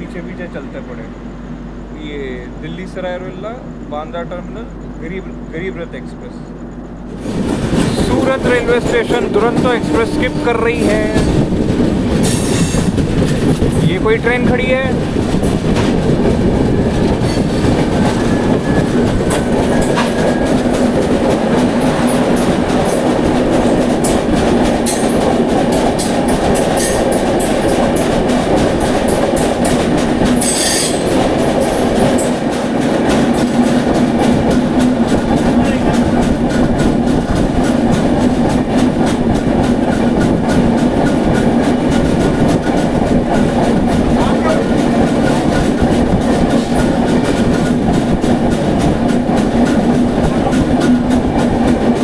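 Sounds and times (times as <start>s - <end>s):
train wheels rumbling on rail: 0.0s - 52.0s
wheels clicking over rail joints: 7.2s - 52.0s
shrill wheel screech: 30.4s - 31.1s.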